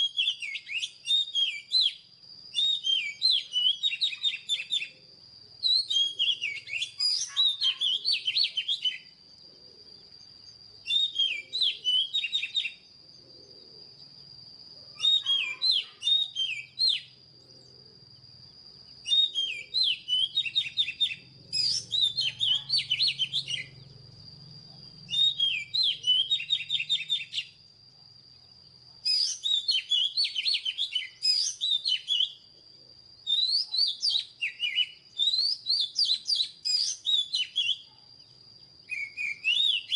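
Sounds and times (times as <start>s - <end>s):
bird singing whistled phrases: 0.0s - 5.0s, 5.6s - 9.2s, 10.8s - 12.9s, 14.9s - 17.2s, 19.0s - 23.9s, 25.0s - 27.6s, 29.0s - 32.4s, 33.2s - 37.9s, 38.9s - 39.9s
thin steady high tone: 0.0s - 33.4s.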